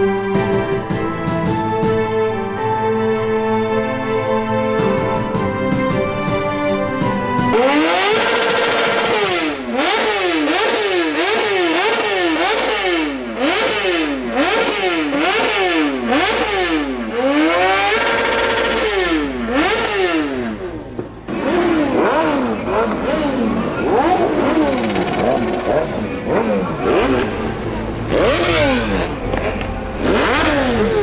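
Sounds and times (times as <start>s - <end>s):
motorcycle engine revving: 7.5s - 31.0s.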